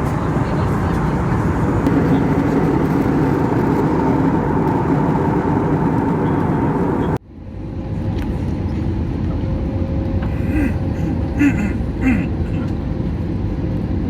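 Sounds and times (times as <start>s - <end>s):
airplane cabin engine rush: 0.0s - 14.0s
steady whine: 1.4s - 7.2s.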